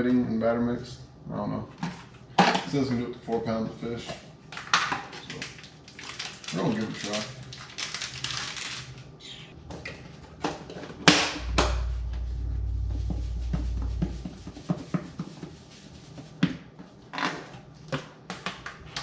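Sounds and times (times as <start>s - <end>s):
low rumble: 11.1s - 16.1s.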